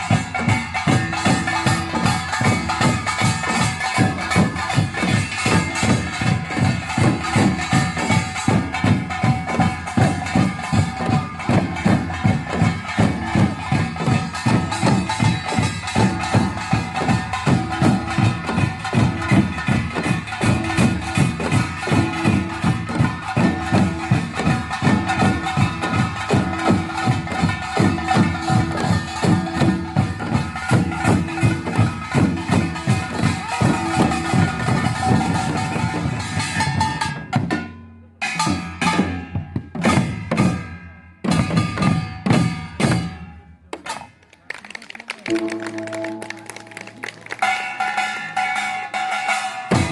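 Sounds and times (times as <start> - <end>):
drums playing fast beat: 0.0 - 44.2, 45.2 - 49.9
gongs ringing: 45.3 - 49.9.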